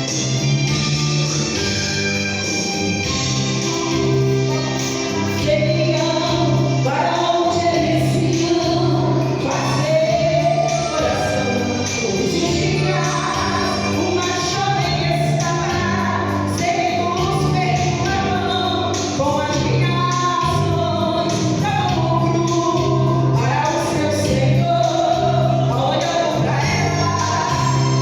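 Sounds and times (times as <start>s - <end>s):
gospel group singing with band: 4.8s - 28.0s.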